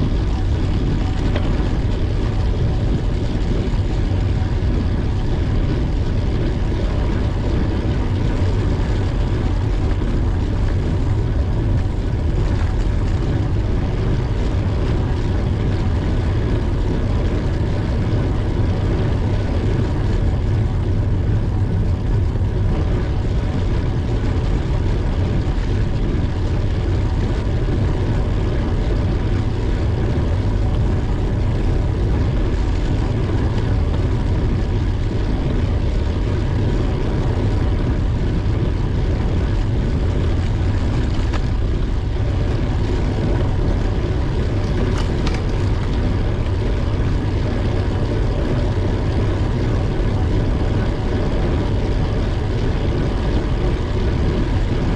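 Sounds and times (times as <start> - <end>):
bicycle road noise: 0.0 - 54.9
wind rumble on microphone: 0.0 - 54.9.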